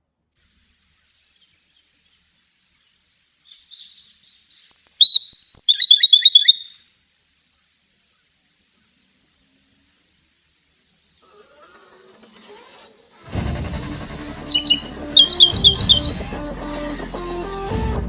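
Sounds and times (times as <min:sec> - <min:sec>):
songbird singing: 0:01.0 - 0:06.9, 0:14.0 - 0:16.4.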